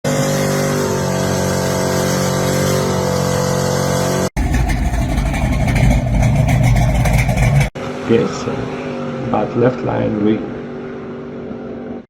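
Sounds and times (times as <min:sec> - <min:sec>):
car engine running: 0:00.0 - 0:07.8
car engine starting: 0:00.0 - 0:09.8.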